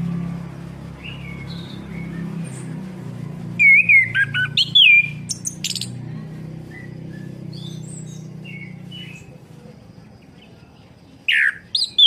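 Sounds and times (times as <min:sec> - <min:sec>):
steady low hum: 0:00.0 - 0:11.7
thrush whistled song: 0:00.9 - 0:02.8, 0:03.5 - 0:06.0, 0:06.7 - 0:09.4, 0:11.3 - 0:12.0
soft bird calls: 0:00.9 - 0:12.0.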